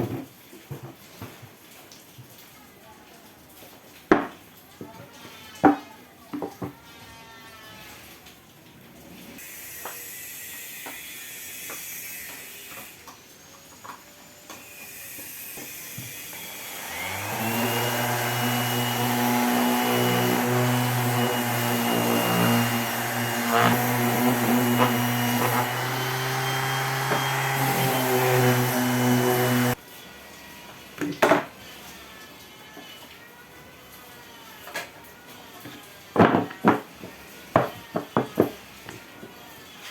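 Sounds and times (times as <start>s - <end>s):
power tool motor whining: 14.6s - 29.8s.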